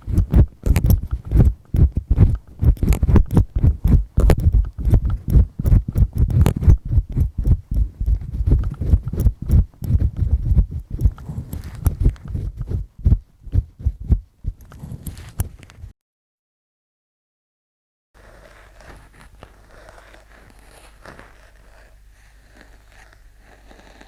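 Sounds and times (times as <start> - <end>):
earpick scraping inside ear: 0.0 - 15.9.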